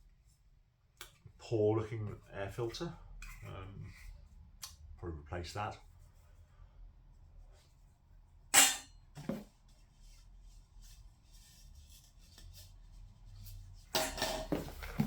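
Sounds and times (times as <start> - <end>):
parts clattering and rustling: 8.6 - 9.5, 13.9 - 15.0.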